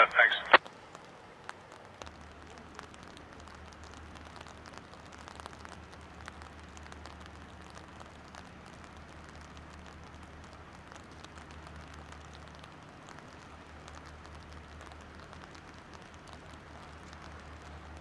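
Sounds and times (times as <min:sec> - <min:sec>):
low steady hum: 0:00.0 - 0:00.6
raindrops pattering on a surface: 0:00.0 - 0:18.0.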